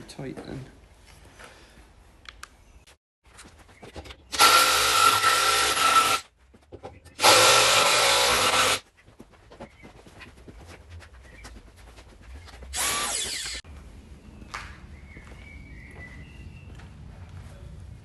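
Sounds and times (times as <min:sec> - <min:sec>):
electric drill boring into wood: 0:04.3 - 0:06.2, 0:07.2 - 0:08.8, 0:12.8 - 0:13.6.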